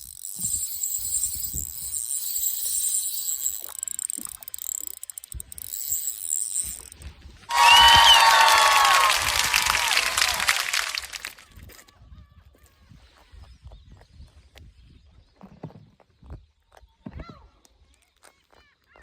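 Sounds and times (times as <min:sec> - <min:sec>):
fishing reel clicking: 0:00.0 - 0:07.1, 0:08.6 - 0:11.4.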